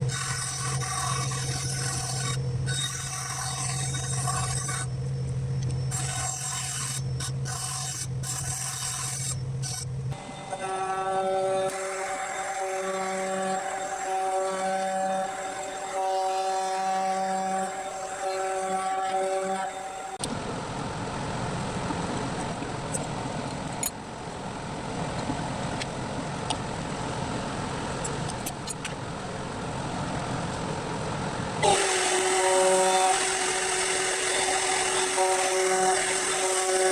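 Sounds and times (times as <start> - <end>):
machine running: 0.0 - 20.3, 31.6 - 36.9
power sander motor hum: 10.1 - 20.3, 31.6 - 36.9
steady pitched tones: 10.1 - 20.3
sander rasping on wood: 10.6 - 20.2, 31.6 - 36.9.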